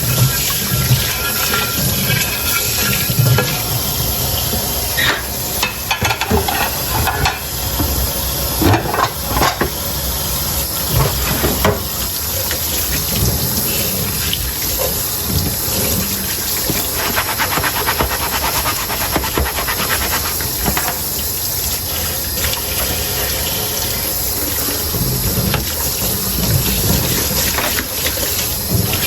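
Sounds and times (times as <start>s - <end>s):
tap water running into sink: 0.0s - 29.0s
dishes clinking: 5.0s - 8.0s, 8.6s - 9.8s
quick rubbing strokes: 16.9s - 20.6s.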